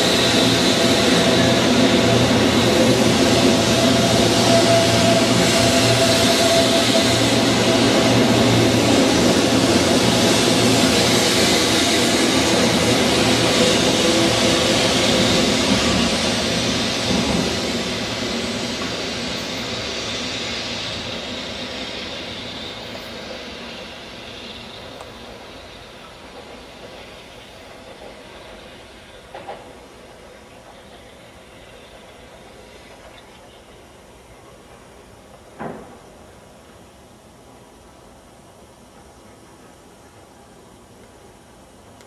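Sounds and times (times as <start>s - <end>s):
train motor whine: 0.0s - 27.1s
train passing: 0.0s - 42.0s.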